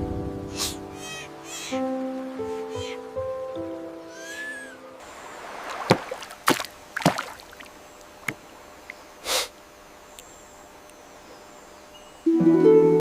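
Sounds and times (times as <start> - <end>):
water splashing: 5.0 - 9.0
brief hissy burst: 9.2 - 9.5.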